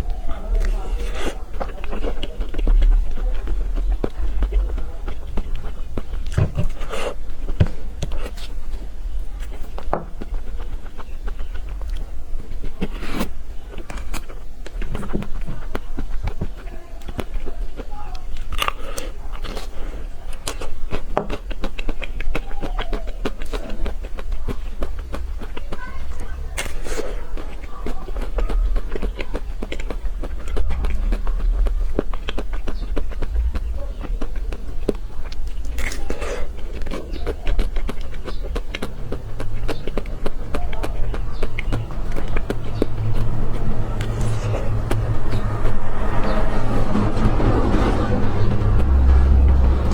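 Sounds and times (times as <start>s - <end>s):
low steady rumble: 0.0s - 12.8s, 28.2s - 49.9s
crisp chocolate crackles when bitten: 0.0s - 44.3s
wet mouth sounds: 0.0s - 47.0s.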